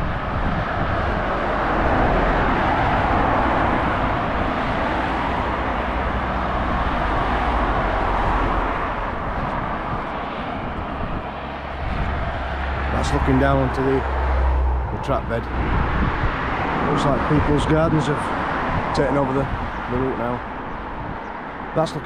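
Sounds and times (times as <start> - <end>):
road vehicle passing: 0.0 - 22.0.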